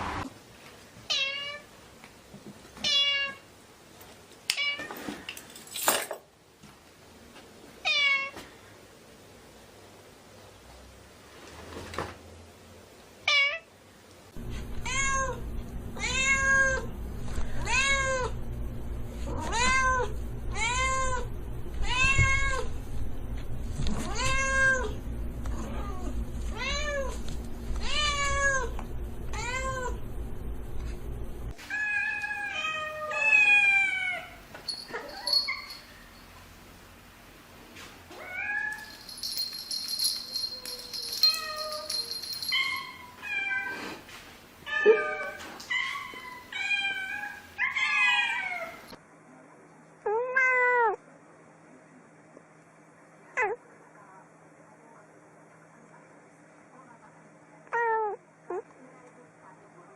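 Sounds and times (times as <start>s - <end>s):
low steady hum: 14.3s - 31.6s, 34.2s - 37.6s, 38.7s - 43.2s.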